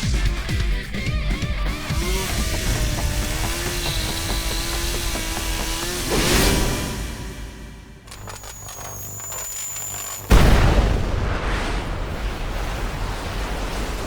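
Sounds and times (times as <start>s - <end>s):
high steady whine: 1.5s - 10.6s
loud explosion with rumble: 10.3s - 14.0s.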